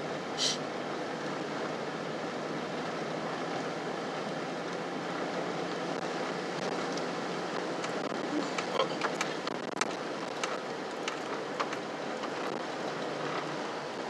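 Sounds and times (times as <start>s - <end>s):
road and tyre noise from inside a truck: 0.0s - 14.0s.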